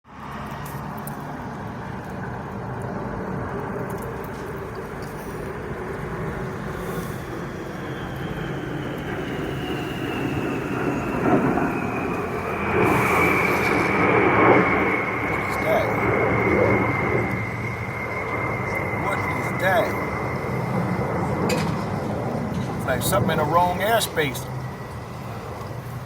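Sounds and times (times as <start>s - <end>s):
high engine whine: 0.1s - 26.0s
jet aircraft rumble: 0.1s - 26.0s.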